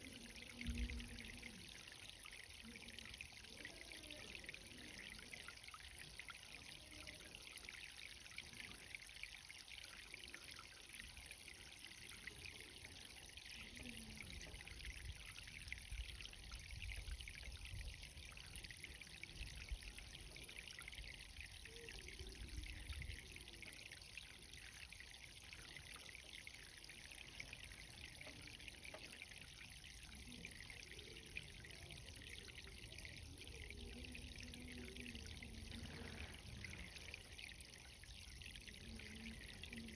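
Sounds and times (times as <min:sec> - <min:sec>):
water spattering from irrigation: 0:09.6 - 0:39.9.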